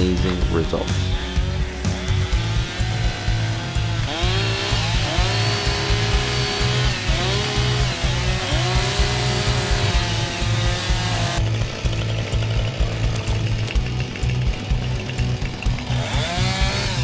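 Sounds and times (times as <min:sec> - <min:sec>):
background music with steady beat: 0:00.0 - 0:17.0
chainsaw revving: 0:00.0 - 0:17.0.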